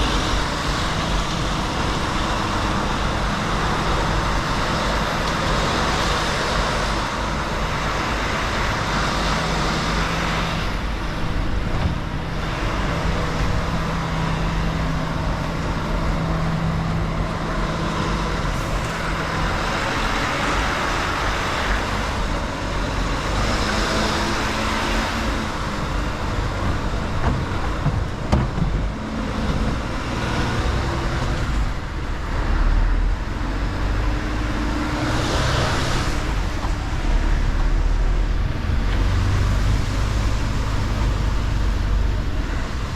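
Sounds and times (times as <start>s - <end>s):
truck diesel engine running: 0.0s - 42.9s
tyre and road noise: 0.0s - 42.9s.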